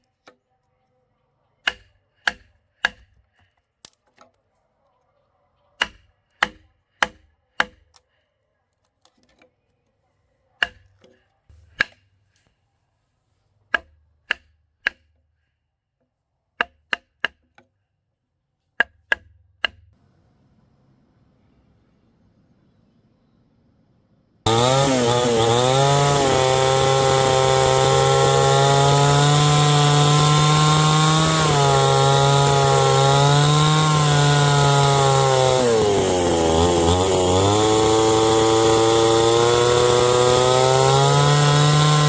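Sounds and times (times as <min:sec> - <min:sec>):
hand tool striking wood: 0:24.5 - 0:42.0.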